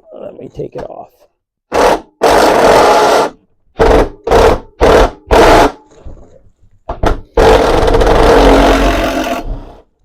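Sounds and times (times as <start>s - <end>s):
power tool trigger bursts: 1.7s - 5.8s, 7.3s - 9.7s.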